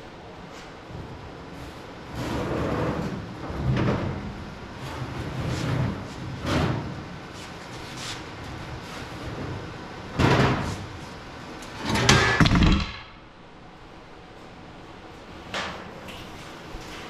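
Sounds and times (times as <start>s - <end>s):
metal clunks and scrapes: 11.6s - 13.2s.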